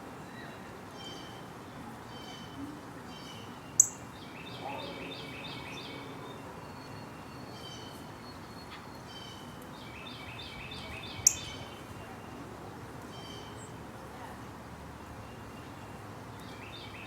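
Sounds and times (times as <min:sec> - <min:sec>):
outdoor background noise: 0:00.0 - 0:17.0
songbirds calling: 0:02.1 - 0:12.5, 0:13.1 - 0:13.8, 0:14.9 - 0:17.0.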